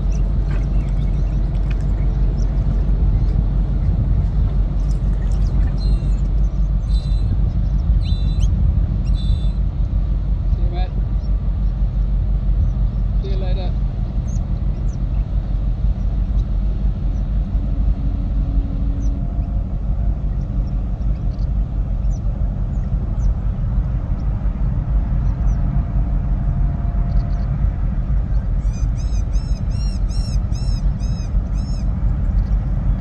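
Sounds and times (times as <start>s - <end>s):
low rumble: 0.0s - 33.0s
bird chirps: 5.3s - 9.6s
bird repeated arched calls: 28.6s - 31.9s.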